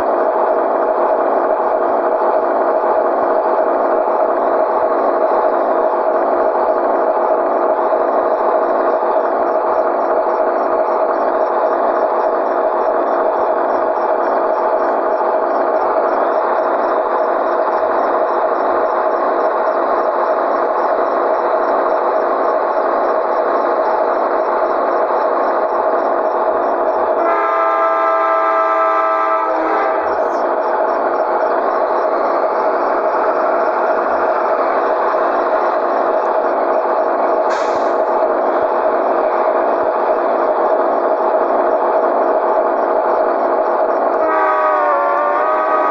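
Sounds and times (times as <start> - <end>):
air horn blast: 27.2 - 30.1, 44.2 - 45.9
hiss of air: 37.4 - 38.2.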